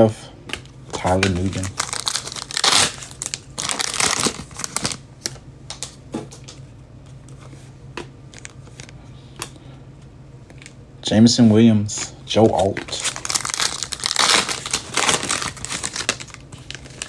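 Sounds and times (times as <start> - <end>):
cards clicking and tapping: 0.5 - 1.8
foil wrapper crinkling: 0.9 - 6.6, 12.4 - 17.0.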